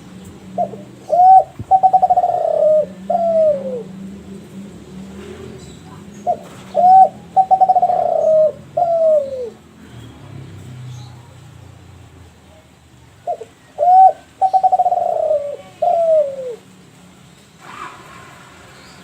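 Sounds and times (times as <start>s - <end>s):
dove cooing: 0.0s - 9.7s, 13.2s - 16.8s.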